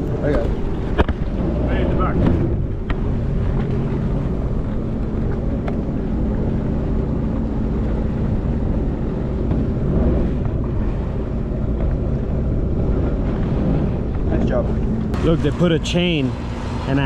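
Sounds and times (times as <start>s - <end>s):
wind rumbling on microphone: 0.0s - 15.2s
small boat motor running: 0.0s - 17.0s.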